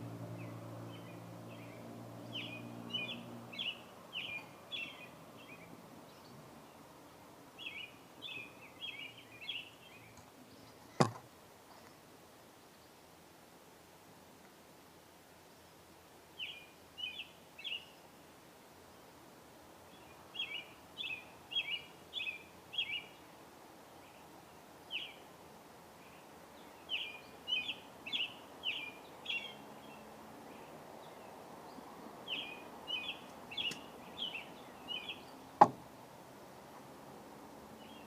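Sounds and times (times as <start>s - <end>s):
small birds chirping: 0.0s - 11.1s, 15.5s - 18.2s, 19.8s - 36.5s, 37.3s - 38.0s
sharp knock: 35.6s - 35.8s.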